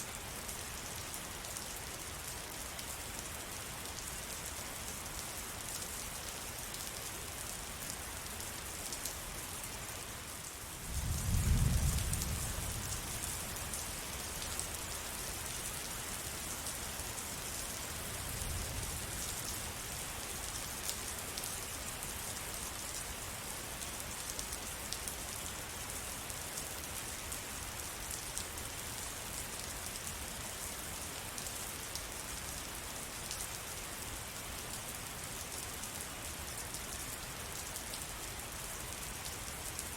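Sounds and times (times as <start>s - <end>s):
rain pattering: 10.4s - 39.9s.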